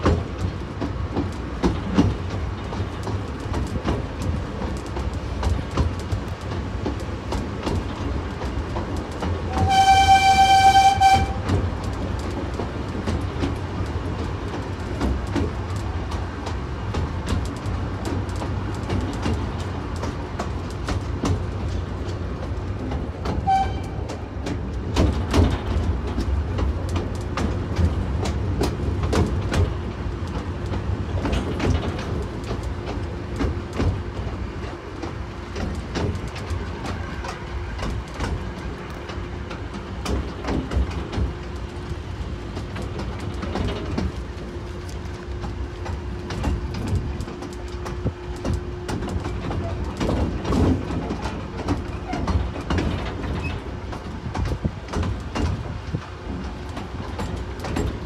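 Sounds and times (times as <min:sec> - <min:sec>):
miniature train rumbling: 0:00.0 - 0:58.0
wheels clicking over rail joints: 0:00.0 - 0:58.0.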